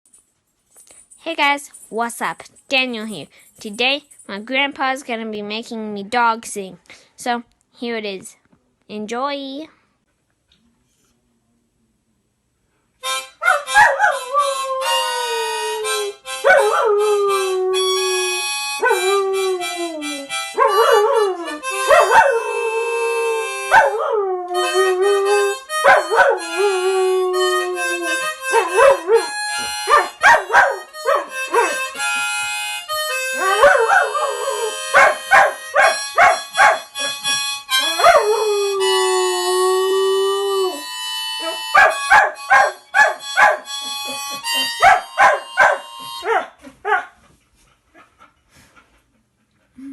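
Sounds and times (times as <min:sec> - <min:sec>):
harmonica chords: 0:13.0 - 0:46.7
dog howling: 0:13.4 - 0:31.8, 0:33.2 - 0:43.6.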